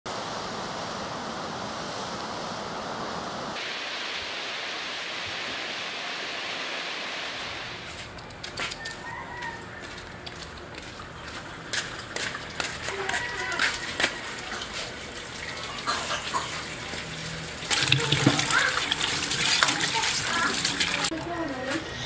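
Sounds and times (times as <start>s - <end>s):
wok sizzling over gas flame: 12.0s - 22.0s
hot pot sizzling: 13.4s - 21.2s.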